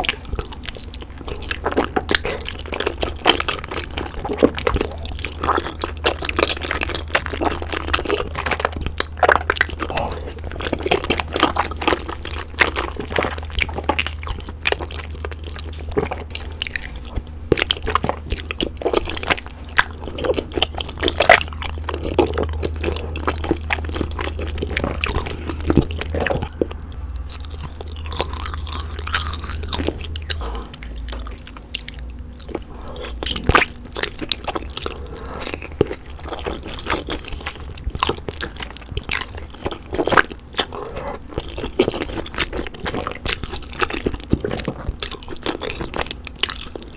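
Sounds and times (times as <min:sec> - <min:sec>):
chewing noodles: 0:00.0 - 0:46.9.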